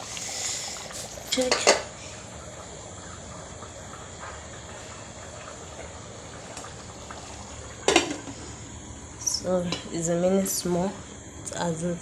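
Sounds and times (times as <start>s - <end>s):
pot of rice hissing: 0.0s - 9.6s.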